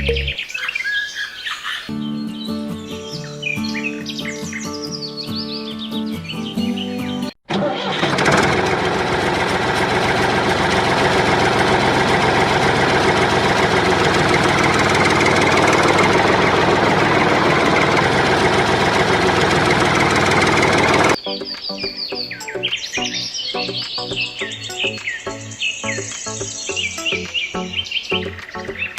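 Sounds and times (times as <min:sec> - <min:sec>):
engine knocking steadily: 0:08.0 - 0:21.2.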